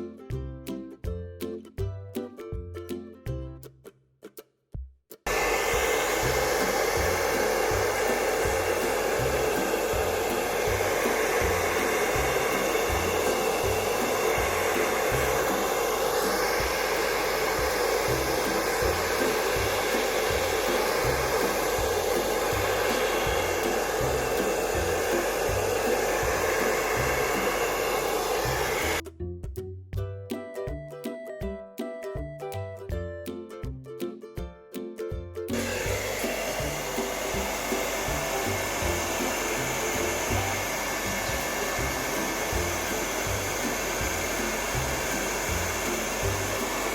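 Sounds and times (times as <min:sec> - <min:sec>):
hair dryer blowing: 0:05.3 - 0:29.0, 0:35.5 - 0:46.9.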